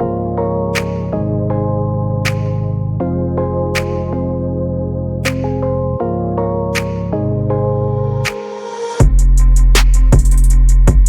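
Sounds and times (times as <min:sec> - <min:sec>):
synthesizer chords: 0:00.0 - 0:11.0
hi-hat ticks: 0:09.0 - 0:11.0
sustained bass: 0:09.0 - 0:11.0.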